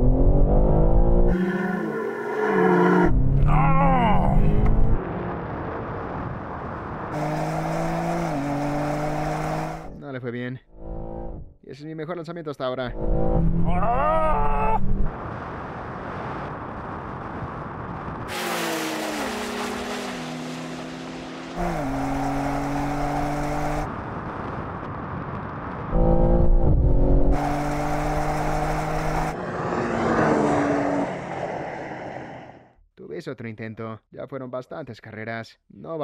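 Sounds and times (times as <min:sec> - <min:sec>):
car engine accelerating hard: 0:07.1 - 0:09.9, 0:18.3 - 0:23.9, 0:26.0 - 0:32.5.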